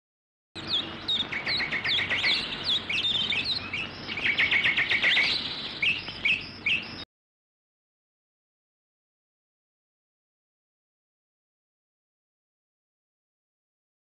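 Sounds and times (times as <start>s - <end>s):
small birds chirping: 0.6s - 7.1s.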